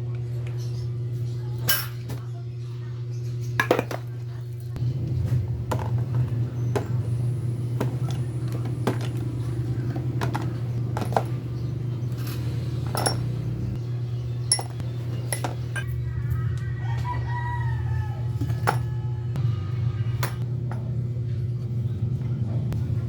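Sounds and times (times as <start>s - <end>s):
steady low hum: 0.0s - 23.0s
metal tools and parts clinking: 12.1s - 13.5s, 14.5s - 16.0s.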